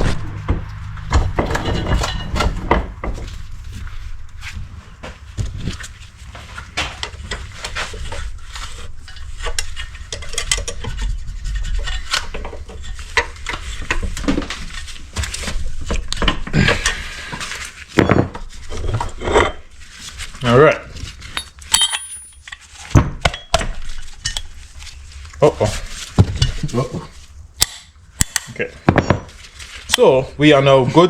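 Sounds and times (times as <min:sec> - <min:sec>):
loud metal knocks: 0:00.0 - 0:03.2
metal clinking and scraping: 0:00.0 - 0:04.5, 0:05.5 - 0:30.0.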